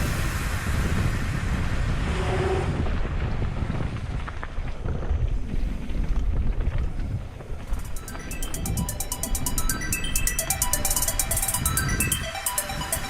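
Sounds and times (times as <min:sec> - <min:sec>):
wind rumbling on microphone: 0:00.0 - 0:07.8.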